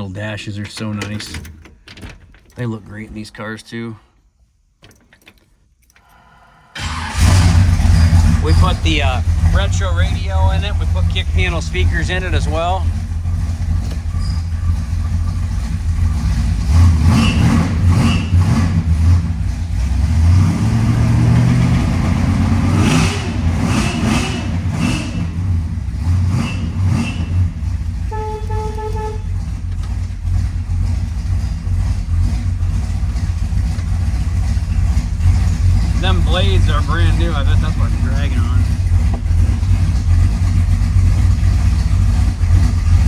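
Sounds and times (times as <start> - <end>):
car engine idling and revving: 6.8 - 43.0
short horn toot: 26.4 - 29.4.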